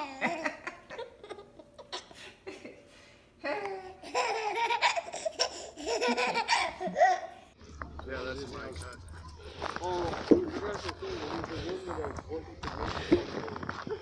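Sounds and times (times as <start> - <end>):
person laughing: 13.1 - 14.0.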